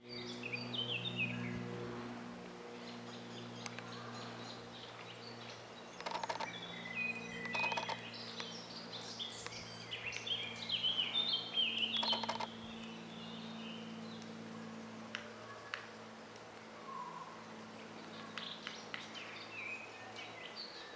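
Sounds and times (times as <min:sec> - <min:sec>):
songbird chirping: 0:02.8 - 0:15.9
woodpecker knocking on wood: 0:06.0 - 0:06.5, 0:07.4 - 0:08.0, 0:12.0 - 0:12.5.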